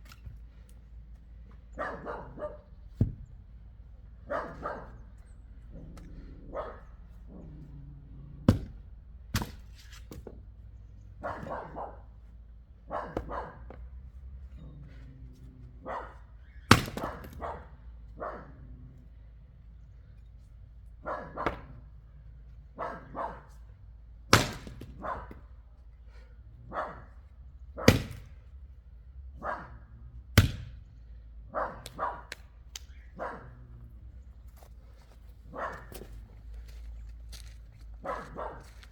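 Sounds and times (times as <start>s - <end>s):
dog barking: 1.7s - 2.8s, 4.2s - 5.2s, 5.8s - 7.6s, 11.2s - 12.1s, 12.9s - 13.8s, 15.8s - 16.3s, 17.0s - 18.6s, 21.0s - 21.8s, 22.8s - 23.6s, 25.0s - 25.5s, 26.7s - 27.2s, 29.4s - 29.9s, 31.5s - 32.4s, 33.1s - 33.8s, 35.5s - 36.2s, 38.0s - 38.8s
axe chopping wood: 2.9s - 3.3s, 8.4s - 10.4s, 11.2s - 11.8s, 13.1s - 13.9s, 16.7s - 17.5s, 21.3s - 21.9s, 24.3s - 25.4s, 27.8s - 28.4s, 30.4s - 30.8s.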